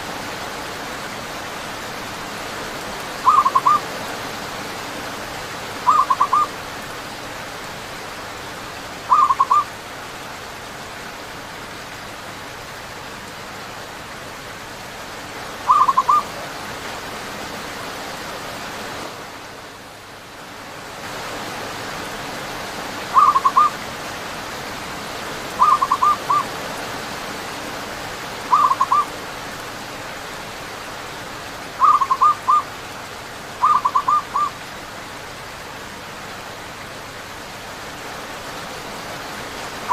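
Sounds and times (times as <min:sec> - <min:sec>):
rain hissing: 0:00.0 - 0:39.9
doves cooing: 0:03.2 - 0:03.8, 0:05.8 - 0:06.5, 0:09.1 - 0:09.7, 0:15.7 - 0:16.3, 0:23.2 - 0:23.8, 0:25.6 - 0:26.5, 0:28.5 - 0:29.1, 0:31.8 - 0:32.7, 0:33.6 - 0:34.6.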